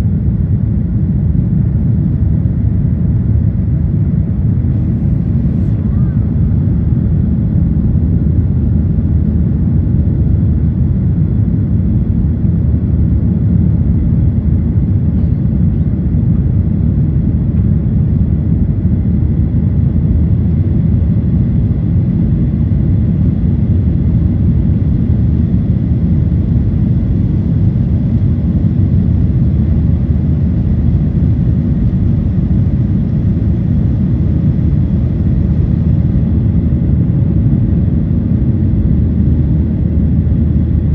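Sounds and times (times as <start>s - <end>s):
faint steady whines: 0.0s - 40.9s
jet engine cabin rumble: 0.0s - 40.9s.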